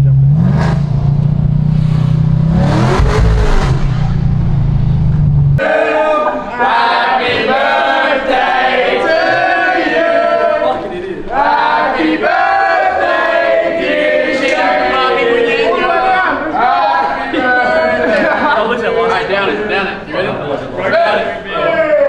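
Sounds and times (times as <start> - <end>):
car engine revving: 0.0 - 5.6
a cappella choir singing: 5.6 - 18.8.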